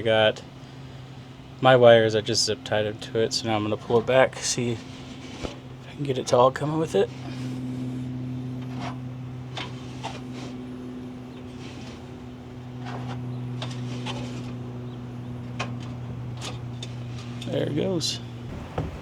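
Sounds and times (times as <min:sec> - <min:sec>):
steady low hum: 0:00.0 - 0:19.0
wires scraping through metal: 0:03.4 - 0:18.5.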